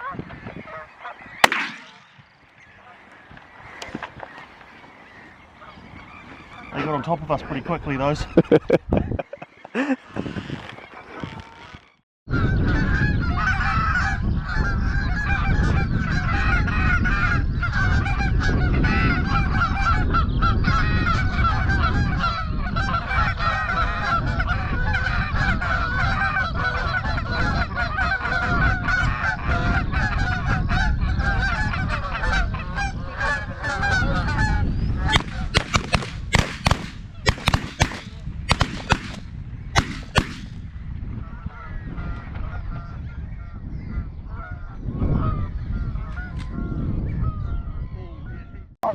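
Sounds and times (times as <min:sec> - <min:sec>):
geese honking: 0:00.0 - 0:08.6, 0:12.4 - 0:39.2
sharp loud bangs: 0:01.4 - 0:02.2, 0:35.1 - 0:40.6.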